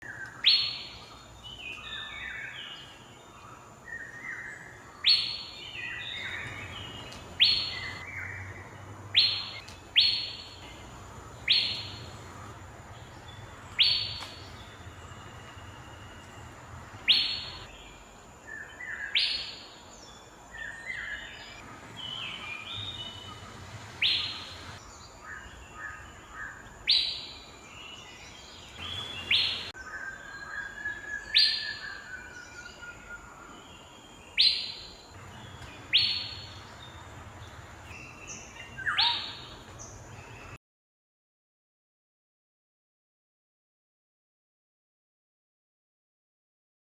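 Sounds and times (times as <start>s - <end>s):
softer bird calls: 0.0s - 19.8s, 20.5s - 40.6s
bird whistled calls: 3.9s - 10.6s, 11.4s - 12.1s, 13.3s - 17.7s, 20.7s - 27.4s, 28.8s - 33.6s, 34.4s - 36.6s, 38.1s - 39.6s.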